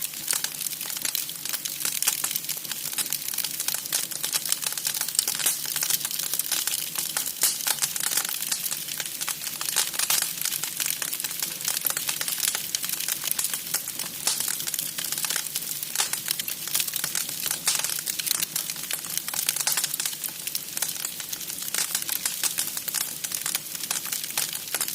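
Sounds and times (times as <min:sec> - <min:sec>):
wood fire crackling: 0:00.0 - 0:24.9.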